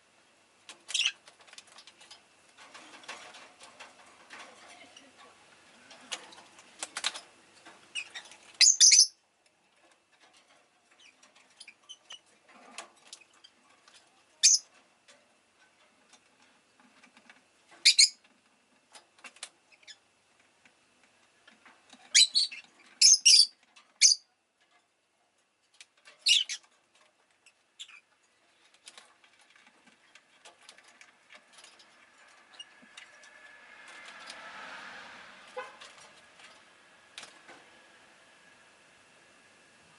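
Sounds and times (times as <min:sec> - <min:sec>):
faint clicks and rustles: 0:00.0 - 0:08.6, 0:09.3 - 0:38.0
lovebird shrill chirps: 0:08.1 - 0:09.2, 0:22.1 - 0:24.2.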